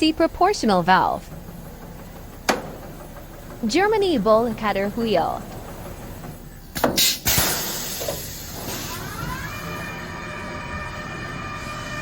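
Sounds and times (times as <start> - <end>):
machine motor whine: 8.5 - 12.0.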